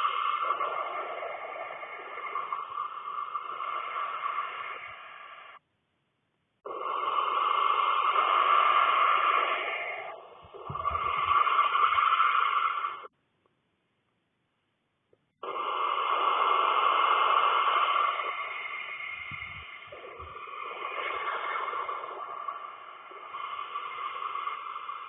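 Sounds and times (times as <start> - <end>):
owlets hissing: 0.0 - 5.6, 6.6 - 13.1, 15.3 - 25.0.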